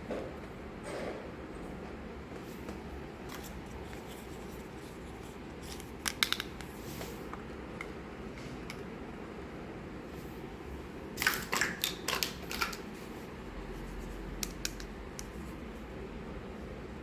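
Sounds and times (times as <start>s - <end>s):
toy pieces clicking and tapping: 5.6s - 6.7s, 11.2s - 12.8s, 14.4s - 15.4s
steady low hum: 12.0s - 17.0s.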